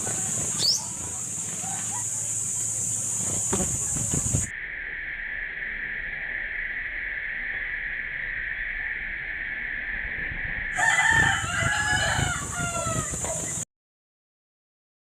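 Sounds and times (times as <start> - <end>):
steady hiss: 0.0 - 13.6
high-pitched background tone: 2.4 - 11.2
rooster crowing: 10.7 - 13.6.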